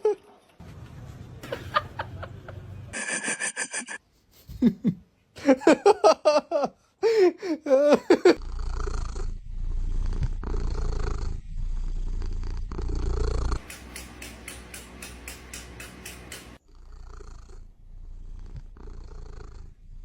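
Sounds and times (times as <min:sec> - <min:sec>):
person laughing: 0:01.4 - 0:08.4
cat purring: 0:08.4 - 0:13.6, 0:16.6 - 0:20.0.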